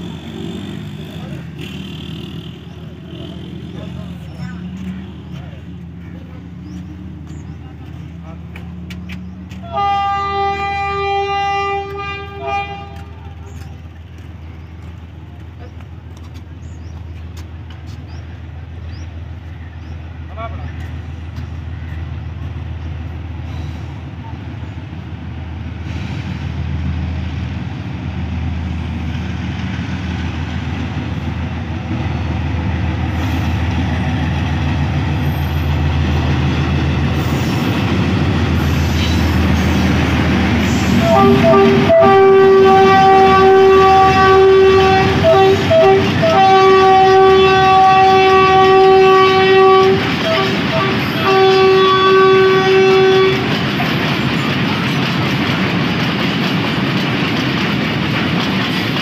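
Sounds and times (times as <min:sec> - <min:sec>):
locomotive engine drone: 0:00.0 - 0:59.0
train horn blasts and toots: 0:09.6 - 0:13.6, 0:40.6 - 0:53.6
wheels clacking over rail joints: 0:29.0 - 0:59.0.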